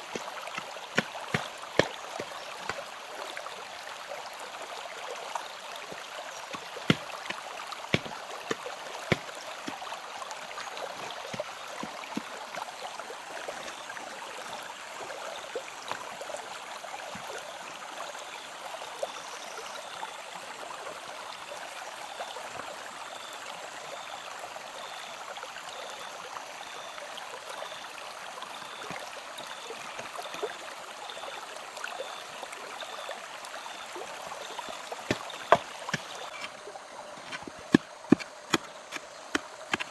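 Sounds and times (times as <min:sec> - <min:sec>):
flowing stream water: 0:00.0 - 0:39.9.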